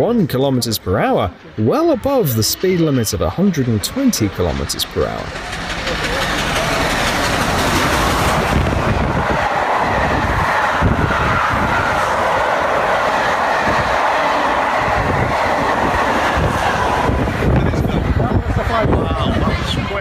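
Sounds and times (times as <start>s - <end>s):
train passing at high speed: 2.2s - 20.0s.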